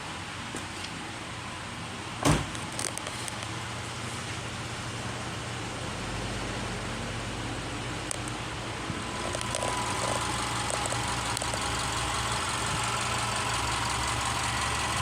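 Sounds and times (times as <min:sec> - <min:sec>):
car engine idling: 0:03.4 - 0:15.0.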